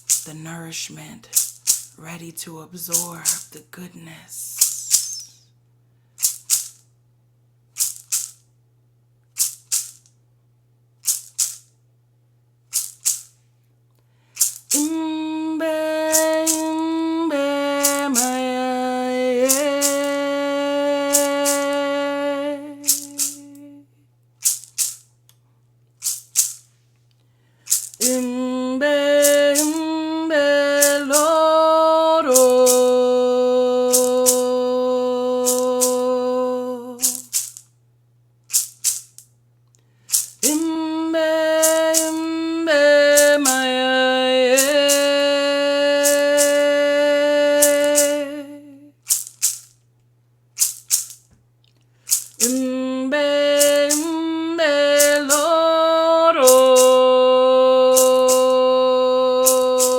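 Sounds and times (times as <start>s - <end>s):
woman singing wordless melody: 0.0s - 1.3s, 2.0s - 5.4s, 14.7s - 24.0s, 28.0s - 37.3s, 40.4s - 49.0s, 52.4s - 59.9s
hand rattle shaking: 0.0s - 5.4s, 6.2s - 6.9s, 7.8s - 8.5s, 9.4s - 10.2s, 11.0s - 11.8s, 12.7s - 13.4s, 14.4s - 15.1s, 16.0s - 16.8s, 17.8s - 18.6s, 19.4s - 23.6s, 24.4s - 25.2s, 26.0s - 26.8s, 27.6s - 28.4s, 29.1s - 29.8s, 30.6s - 31.4s, 32.3s - 33.0s, 33.9s - 34.6s, 35.4s - 36.2s, 36.9s - 37.7s, 38.5s - 39.3s, 40.1s - 40.8s, 41.6s - 49.8s, 50.6s - 51.4s, 52.0s - 55.7s, 56.4s - 57.1s, 57.9s - 58.6s, 59.4s - 59.9s.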